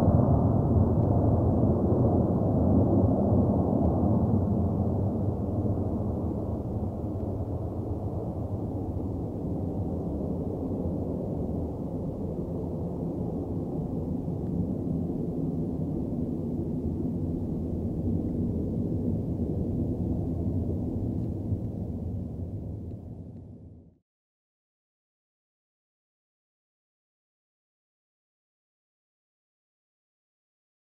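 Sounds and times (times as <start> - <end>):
distant jet engines rumbling: 0.0 - 23.9.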